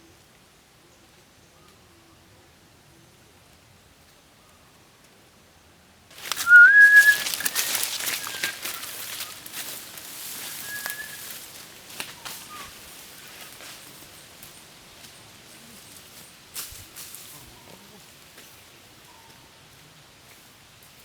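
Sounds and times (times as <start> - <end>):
rustling noise: 6.1 - 15.2
short whistle: 6.4 - 8.6, 10.6 - 11.2.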